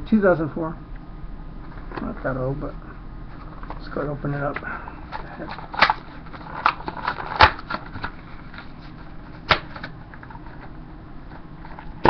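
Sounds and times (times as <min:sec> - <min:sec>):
blister package crinkling: 0:05.1 - 0:09.0.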